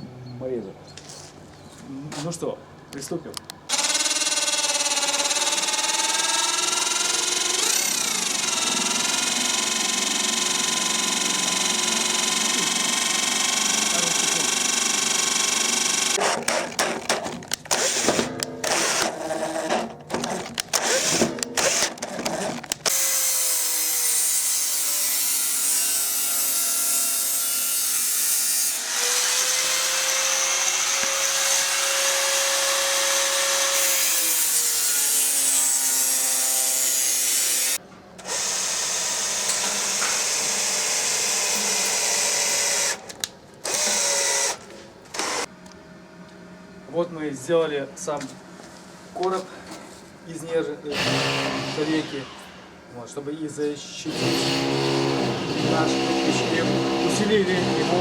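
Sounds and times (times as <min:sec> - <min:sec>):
power drill boring into metal: 0:03.7 - 0:16.2, 0:17.7 - 0:19.6, 0:20.3 - 0:43.0, 0:45.2 - 0:45.5, 0:50.9 - 0:52.6, 0:54.1 - 0:58.0.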